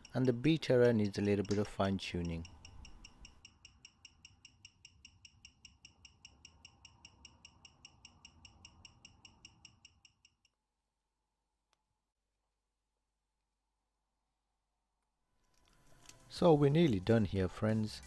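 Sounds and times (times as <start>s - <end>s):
watch movement ticking: 0.0s - 10.5s.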